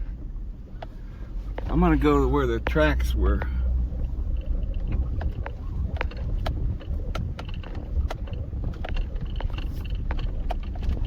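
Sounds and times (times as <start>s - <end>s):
truck engine and tyres rumbling: 0.0s - 11.0s.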